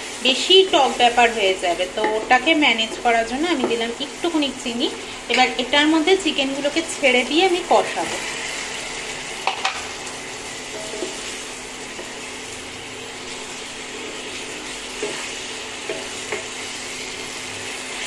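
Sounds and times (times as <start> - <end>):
chicken sizzling in a pan: 0.0 - 18.0
spatula knocking against pan: 15.8 - 16.6.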